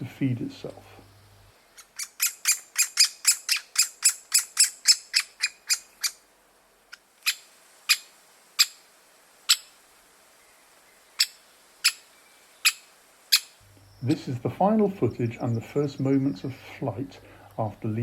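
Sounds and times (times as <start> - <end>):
woodpecker sharp kik calls: 1.0 - 6.2, 6.9 - 9.8, 11.1 - 14.2.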